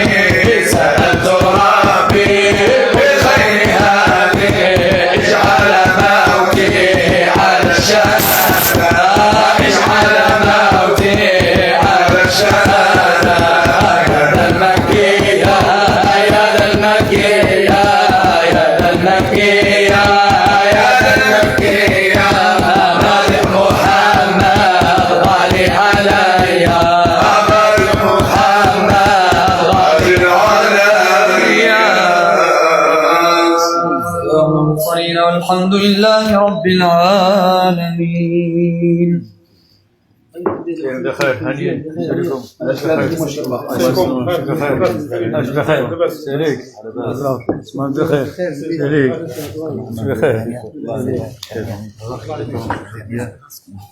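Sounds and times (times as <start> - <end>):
fast hand drum beats: 0.0 - 30.8
person singing devotional song: 0.0 - 39.8.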